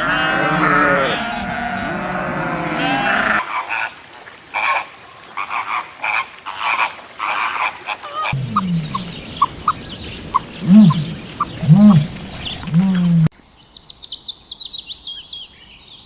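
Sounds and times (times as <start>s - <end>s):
long wavering bleat: 0.0s - 3.4s
short animal calls: 0.0s - 3.4s
another animal calling: 0.0s - 3.8s, 10.6s - 13.3s.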